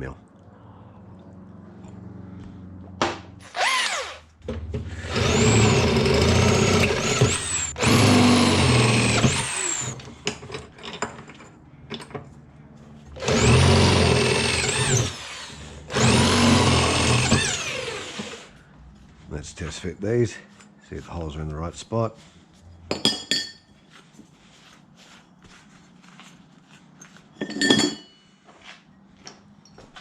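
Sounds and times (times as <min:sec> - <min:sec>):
electric drill whining into steel: 0:03.4 - 0:04.3, 0:04.9 - 0:10.1, 0:13.2 - 0:18.6.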